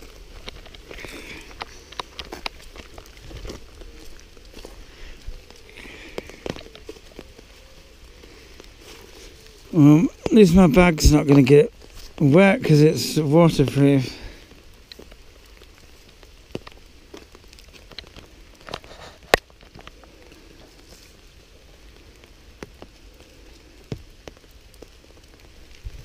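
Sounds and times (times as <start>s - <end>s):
heavier raindrops tapping: 0.0s - 26.0s
light rain falling: 0.0s - 26.0s.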